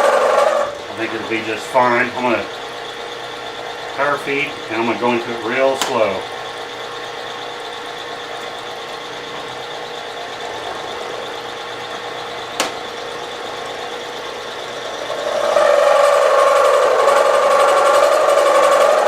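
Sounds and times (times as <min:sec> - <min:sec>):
end mill cutting: 0:00.0 - 0:19.0
milling machine whining: 0:00.0 - 0:19.0.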